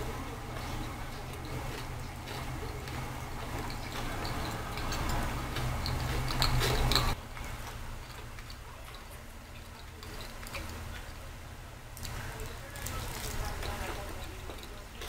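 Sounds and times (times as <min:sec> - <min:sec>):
pizza being chewed: 0:12.0 - 0:15.0.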